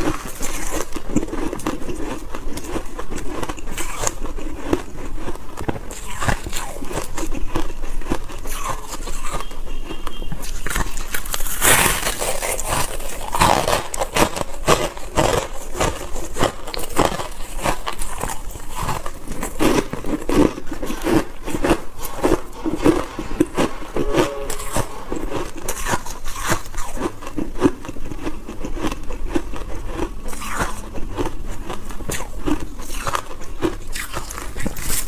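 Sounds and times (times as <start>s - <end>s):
crunching and chewing frost: 0.0s - 35.0s.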